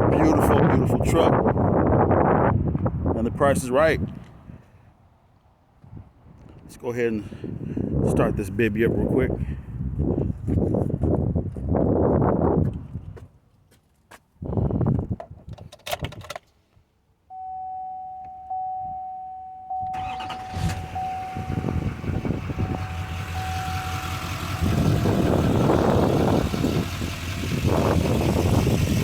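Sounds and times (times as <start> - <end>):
electronic chime: 17.4 - 21.8
diesel engine starting and running: 19.7 - 29.0.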